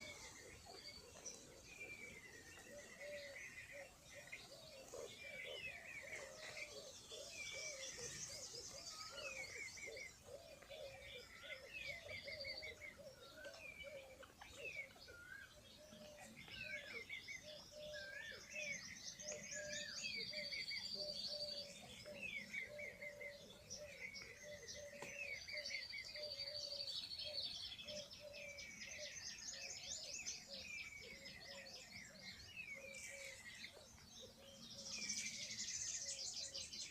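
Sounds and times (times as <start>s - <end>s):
birds chirping and trilling: 0.0s - 36.9s.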